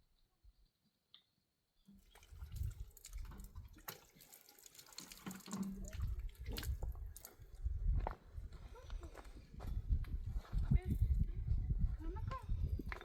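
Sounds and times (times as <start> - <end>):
water splashing and dripping: 1.9 - 7.5.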